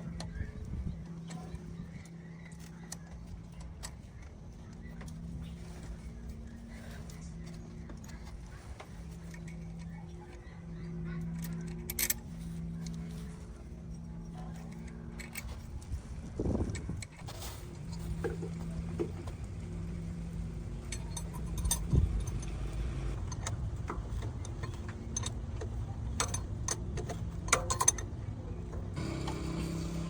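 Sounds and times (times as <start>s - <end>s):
steady low hum: 0.0s - 30.0s
metallic clinks and knocks: 20.7s - 28.1s.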